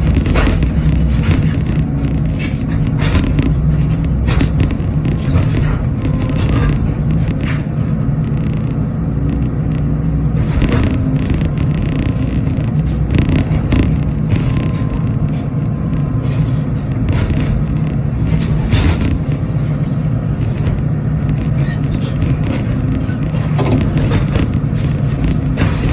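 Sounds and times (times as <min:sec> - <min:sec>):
demolition knocks and scrapes: 0:00.0 - 0:09.5, 0:10.2 - 0:25.9
excavator diesel engine running: 0:00.0 - 0:25.9.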